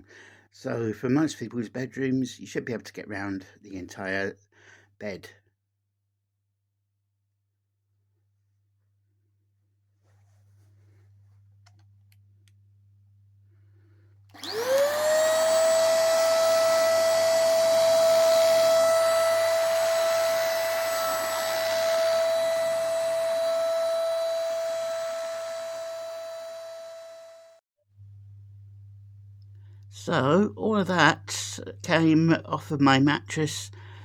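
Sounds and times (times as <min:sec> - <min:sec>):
vacuum motor whine: 0:14.3 - 0:28.2.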